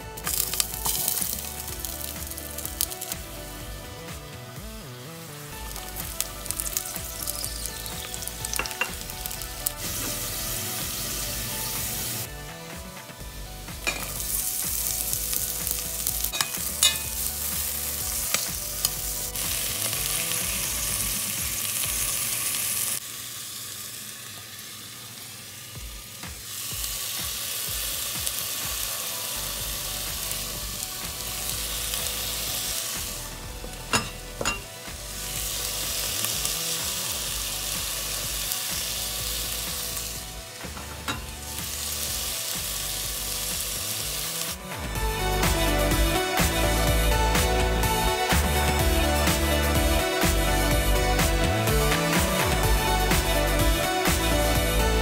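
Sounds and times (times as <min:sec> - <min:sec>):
food sizzling in hot oil: 0:00.0 - 0:55.0.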